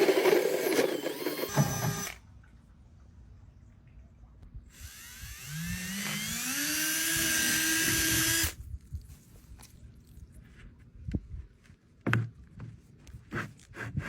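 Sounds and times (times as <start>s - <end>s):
electric drill motor whine: 0.0s - 2.2s, 4.8s - 8.6s.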